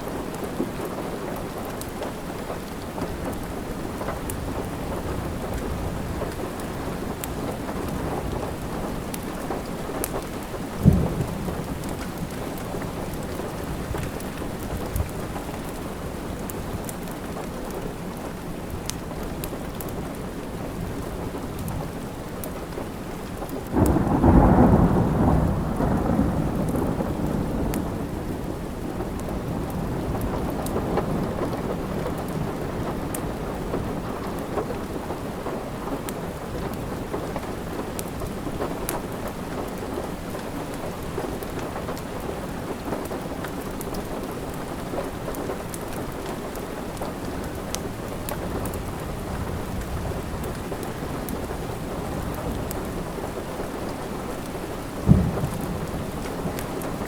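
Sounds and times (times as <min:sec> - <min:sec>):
wood fire crackling: 0:00.0 - 0:23.9, 0:36.0 - 0:57.0
steady rain: 0:00.0 - 0:57.0
thunder rolling: 0:10.7 - 0:14.0, 0:23.8 - 0:31.6, 0:55.0 - 0:57.0.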